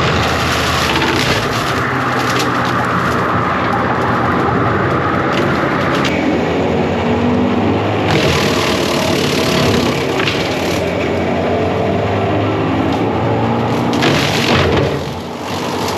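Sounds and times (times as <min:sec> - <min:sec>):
short cracks: 0:00.0 - 0:04.1, 0:08.1 - 0:11.1, 0:13.7 - 0:15.9
diesel engine running under load: 0:00.0 - 0:15.9.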